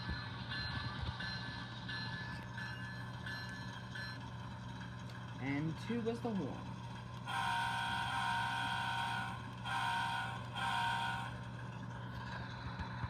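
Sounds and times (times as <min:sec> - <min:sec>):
diesel engine idle hum: 0:01.2 - 0:13.0
locomotive chime horn from small speaker: 0:07.3 - 0:11.6.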